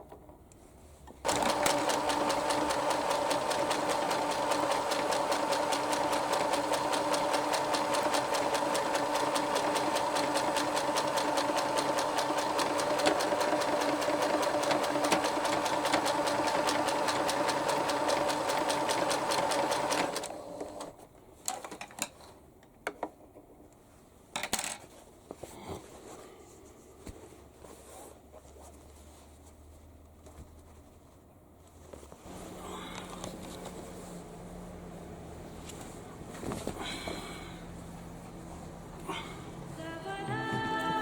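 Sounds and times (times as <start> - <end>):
sewing machine stitching: 1.2 - 20.9
rustling: 23.8 - 38.9.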